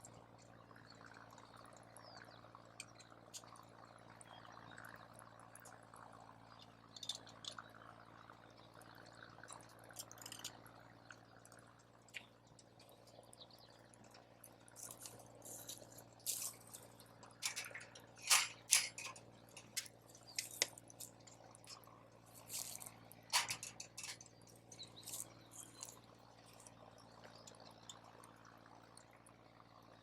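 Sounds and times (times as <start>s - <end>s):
wood campfire crackling: 9.3s - 29.6s.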